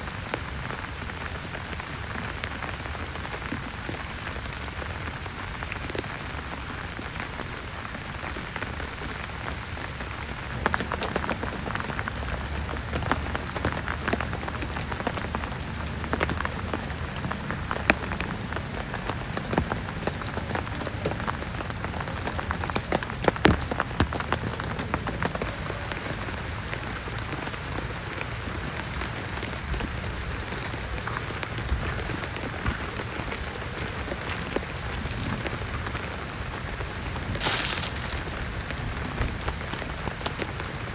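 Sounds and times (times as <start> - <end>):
heavy rain falling: 0.0 - 40.9
sharp raindrop impacts: 26.7 - 40.6.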